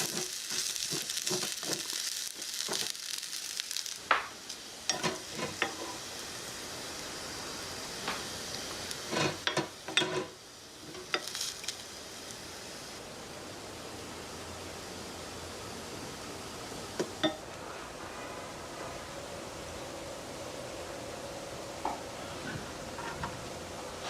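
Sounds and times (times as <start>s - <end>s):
spatula scraping a pan: 0.0s - 2.9s, 4.9s - 6.0s, 8.9s - 11.4s
rice sizzling in a frying pan: 0.0s - 23.4s.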